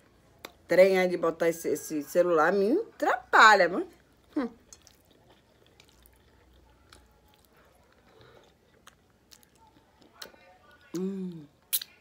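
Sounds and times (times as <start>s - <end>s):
chewing soft food: 4.0s - 12.0s
wet mouth clicks: 11.0s - 12.0s.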